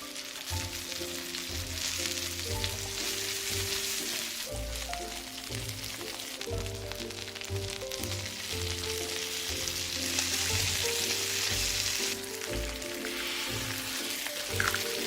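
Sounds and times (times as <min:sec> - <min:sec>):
background music: 0:00.0 - 0:15.0
food sizzling in a pan: 0:00.0 - 0:15.0.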